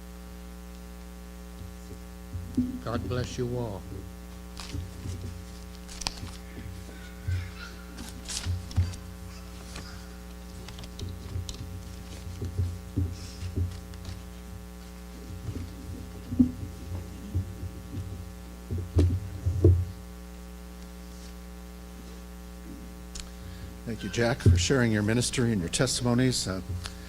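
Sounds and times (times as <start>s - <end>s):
electrical mains hum: 0.0s - 27.0s
low thuds: 1.6s - 7.6s, 10.5s - 20.1s, 23.7s - 27.0s.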